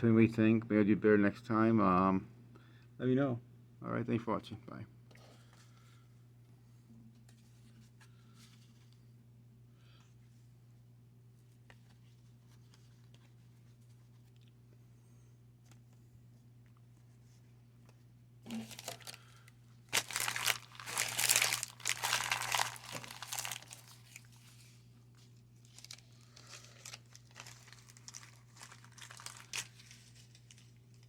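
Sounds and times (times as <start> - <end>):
wax paper crinkling: 16.8 - 31.0
wax paper wrapper tearing: 18.5 - 24.6, 25.3 - 31.0.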